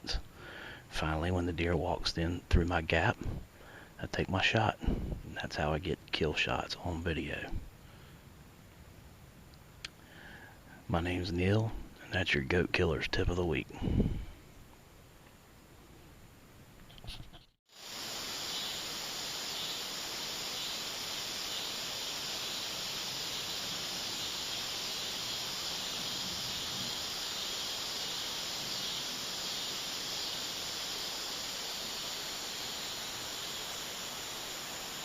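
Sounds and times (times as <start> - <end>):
insects buzzing: 17.7 - 35.0.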